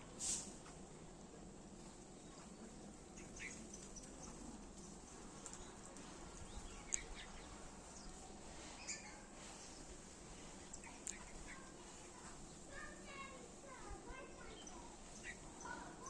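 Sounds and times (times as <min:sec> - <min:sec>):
faint bird chirps: 0:02.2 - 0:09.9, 0:14.2 - 0:16.0.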